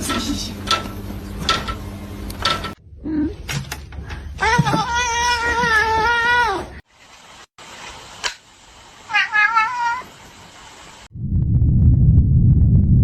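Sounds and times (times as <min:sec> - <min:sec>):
cat meowing: 0:04.4 - 0:06.8, 0:09.1 - 0:10.1.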